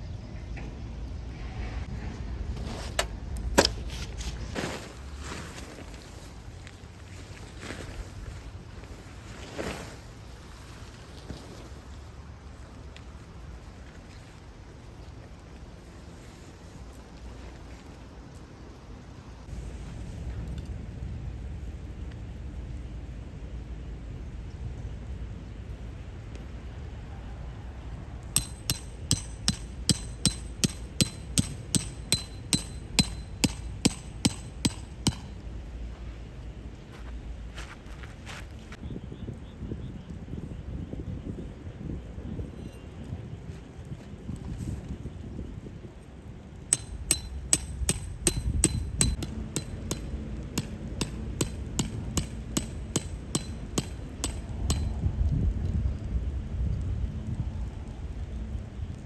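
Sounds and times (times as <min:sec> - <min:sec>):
hammer striking metal stake: 0:28.4 - 0:35.4, 0:46.7 - 0:55.0.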